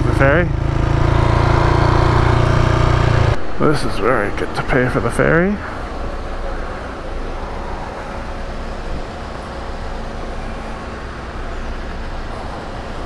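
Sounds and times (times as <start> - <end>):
motorcycle engine running: 0.0 - 5.4
road noise: 0.0 - 13.0.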